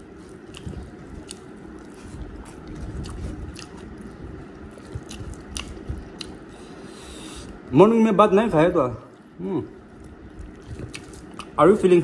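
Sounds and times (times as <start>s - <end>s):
close chewing: 0.0s - 6.8s, 9.1s - 11.8s.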